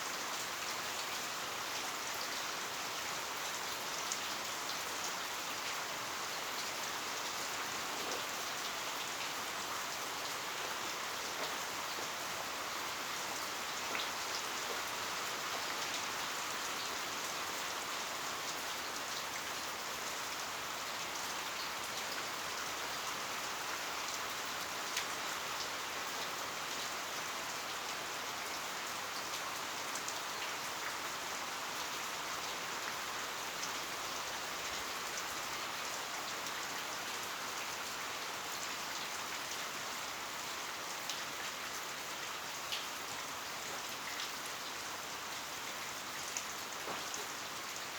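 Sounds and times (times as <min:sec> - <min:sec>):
heavy rain falling: 0:38.6 - 0:47.9
raindrops ticking on surfaces: 0:40.4 - 0:47.9.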